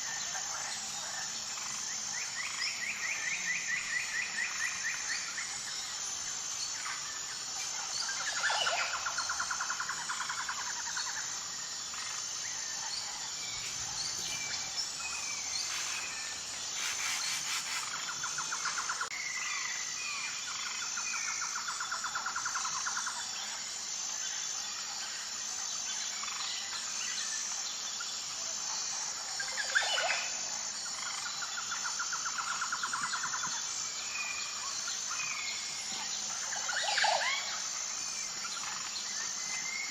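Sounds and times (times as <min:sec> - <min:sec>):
high insect drone: 0:00.0 - 0:39.9
birds chirping and singing: 0:12.9 - 0:19.1.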